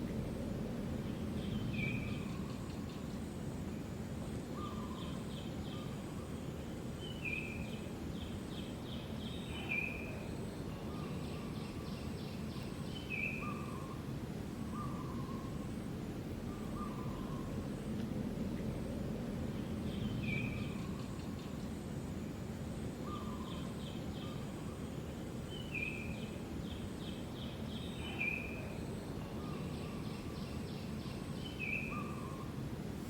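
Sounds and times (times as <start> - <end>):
low background rumble: 0.0 - 4.7, 10.4 - 21.6
small birds chirping and trilling: 4.6 - 15.7, 23.0 - 32.6.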